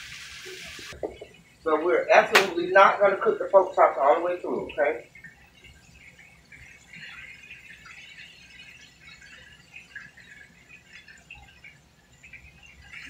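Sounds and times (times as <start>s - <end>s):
meat sizzling in a skillet: 0.0s - 1.0s
grease crackling pops: 2.2s - 2.7s.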